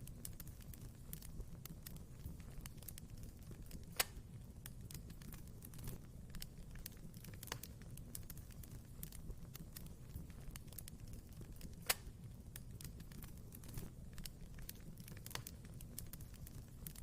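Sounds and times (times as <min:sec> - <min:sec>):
wood fire crackling: 0:00.0 - 0:17.0
sharp pop of fire: 0:03.8 - 0:04.2, 0:11.7 - 0:12.2.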